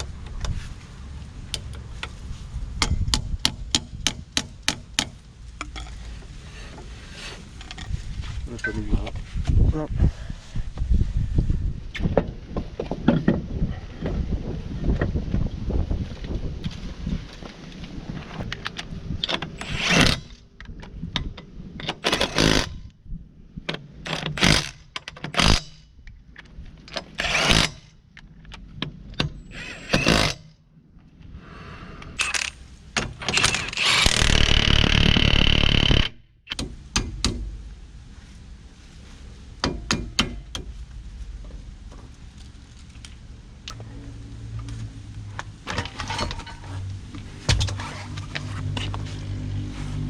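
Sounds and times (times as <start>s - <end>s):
power tool running: 33.3s - 36.2s
metal tools clanking and scraping: 45.6s - 46.9s.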